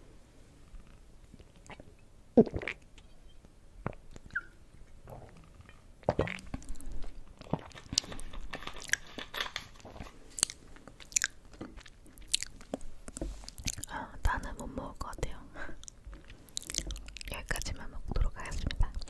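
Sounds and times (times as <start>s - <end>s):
crisp crunching chewing: 6.3s - 14.0s, 15.8s - 17.7s.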